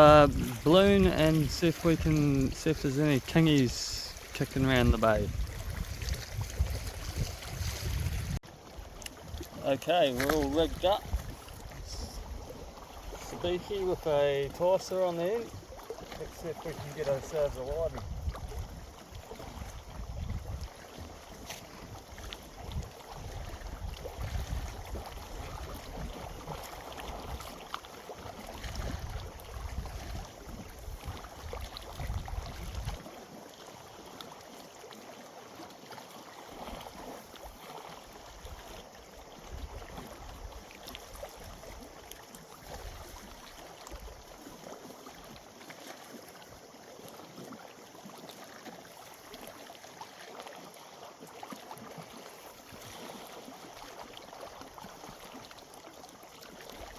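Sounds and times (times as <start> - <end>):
wind buffeting microphone: 0.0 - 8.4, 17.4 - 18.9, 19.5 - 20.7, 28.6 - 33.0
faint hiss of water: 0.0 - 56.9.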